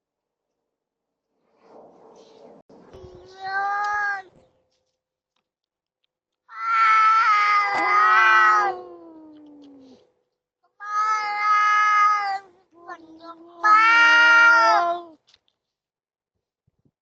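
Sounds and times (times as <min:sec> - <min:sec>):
cat growling: 0:06.5 - 0:10.0
cats yowling: 0:06.5 - 0:10.0, 0:10.8 - 0:15.2.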